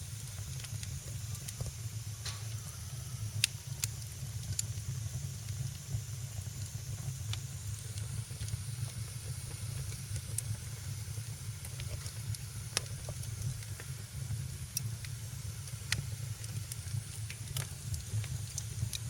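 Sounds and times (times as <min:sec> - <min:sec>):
low rumble of fire: 0:00.0 - 0:19.0
wood fire crackling and popping: 0:00.0 - 0:19.0.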